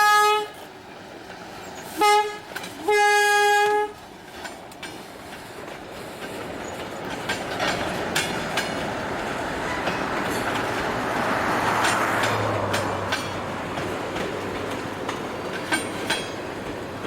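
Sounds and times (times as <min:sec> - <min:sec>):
locomotive horn blast: 0:00.0 - 0:00.6, 0:01.9 - 0:04.0
freight train rumbling: 0:00.0 - 0:17.0
wheels clicking over rail joints: 0:00.0 - 0:17.0.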